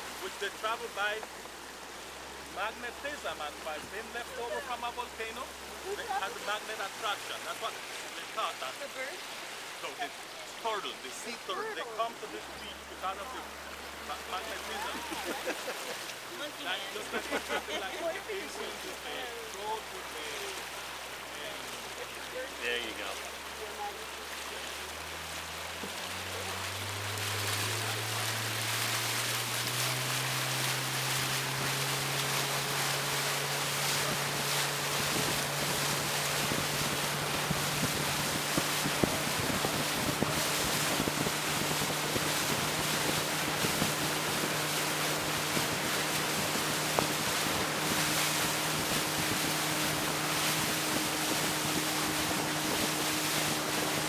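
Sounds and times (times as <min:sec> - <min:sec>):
boat motor speeding up: 0:00.0 - 0:54.0
water rushing past hull: 0:00.0 - 0:54.0
wind buffeting microphone: 0:26.2 - 0:54.0.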